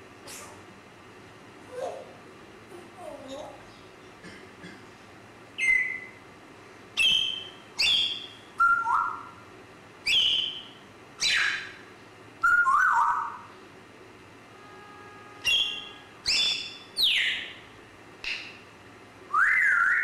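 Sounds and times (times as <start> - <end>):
parrot whistling and calling: 5.6 - 6.2, 7.0 - 9.4, 10.0 - 11.8, 12.4 - 13.5, 15.4 - 17.6, 19.3 - 20.0.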